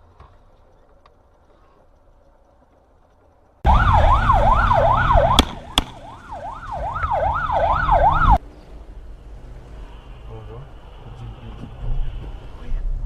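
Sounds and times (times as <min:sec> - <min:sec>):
low vehicle rumble: 0:00.0 - 0:13.0
emergency siren yelping: 0:03.6 - 0:08.4.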